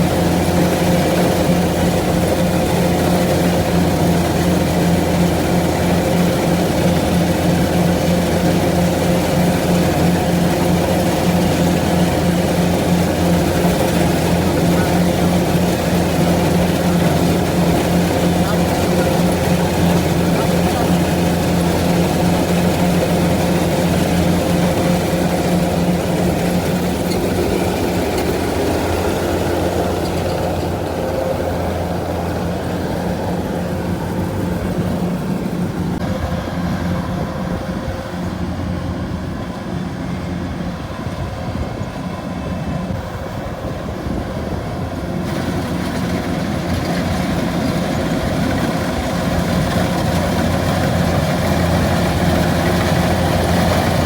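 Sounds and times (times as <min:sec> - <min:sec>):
farm machine engine running: 0:00.0 - 0:54.0.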